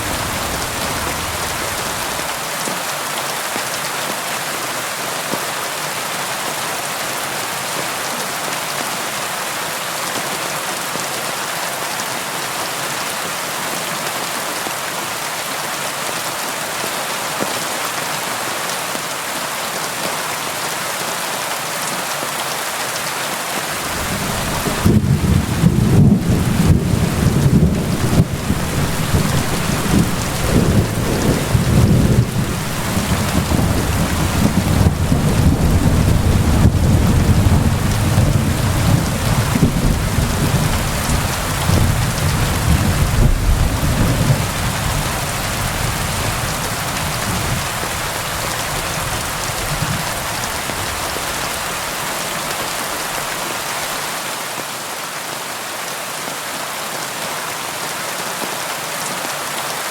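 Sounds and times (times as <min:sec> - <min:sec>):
thunder rumbling: 0:00.0 - 0:02.3, 0:23.8 - 0:51.2
rain hiss: 0:00.0 - 0:03.1, 0:23.5 - 0:54.6.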